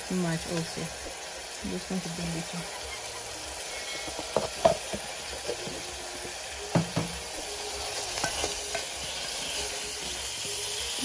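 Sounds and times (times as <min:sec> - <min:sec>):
fish sizzling in hot oil: 0:00.0 - 0:11.0
metal spoon knocking a pot: 0:04.0 - 0:05.0, 0:06.7 - 0:07.2.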